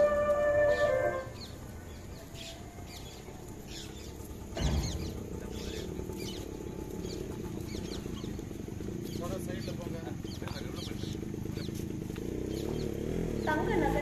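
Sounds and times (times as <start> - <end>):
small birds chirping: 0.7 - 14.0
low thump: 4.5 - 5.4.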